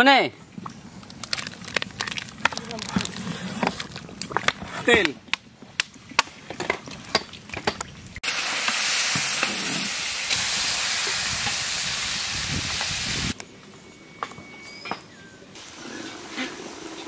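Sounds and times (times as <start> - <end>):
food sizzling in hot oil: 8.2 - 13.4.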